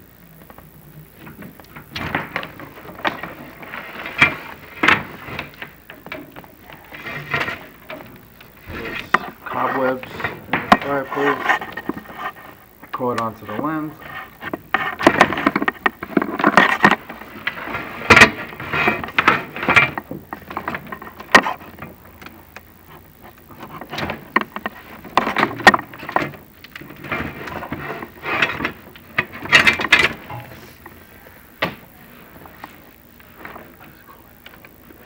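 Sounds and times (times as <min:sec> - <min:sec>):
rubbing and scraping: 0:06.8 - 0:12.7, 0:14.0 - 0:21.8.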